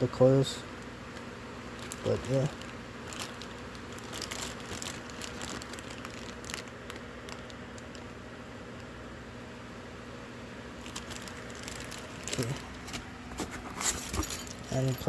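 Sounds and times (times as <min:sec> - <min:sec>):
low electrical hum: 0:00.0 - 0:15.0
packaging rustling and crinkling: 0:01.1 - 0:08.2, 0:10.8 - 0:15.0.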